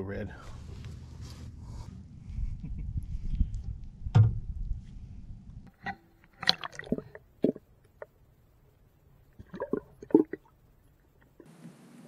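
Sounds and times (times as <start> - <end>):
water splashing and gurgling: 6.2 - 8.1, 9.3 - 11.4.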